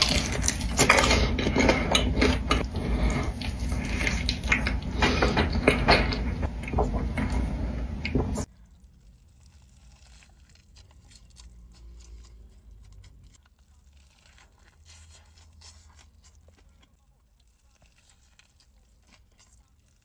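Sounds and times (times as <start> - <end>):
low hum: 0.0 - 8.5
food packaging crinkles and crunches: 0.0 - 20.0.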